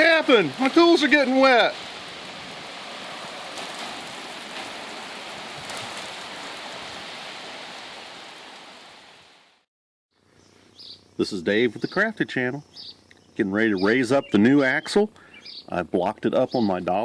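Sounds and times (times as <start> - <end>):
steady rain falling: 0.0 - 9.7.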